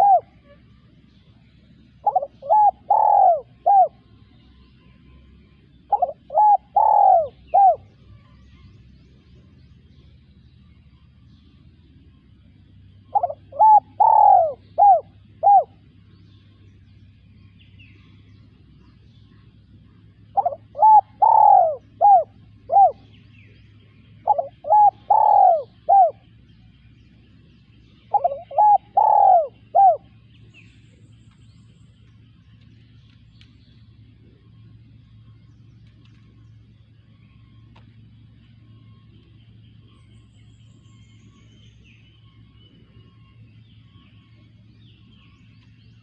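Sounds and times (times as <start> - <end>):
dove cooing: 0.0 - 0.7, 1.6 - 4.3, 5.6 - 7.9, 13.0 - 16.0, 20.0 - 26.4, 28.0 - 30.5.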